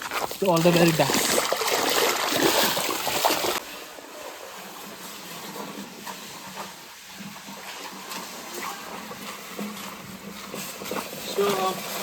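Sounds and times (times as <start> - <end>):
stream water rushing: 0.0 - 5.4
water splashing: 0.0 - 12.0.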